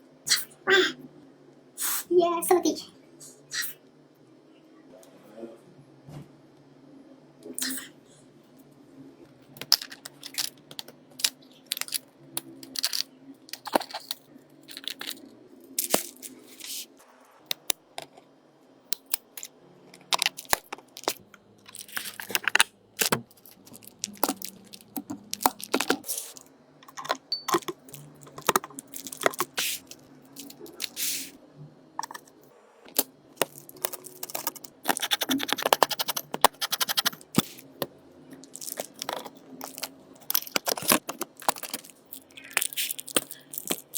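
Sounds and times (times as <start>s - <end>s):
small tools clicking and tapping: 32.9s - 43.9s.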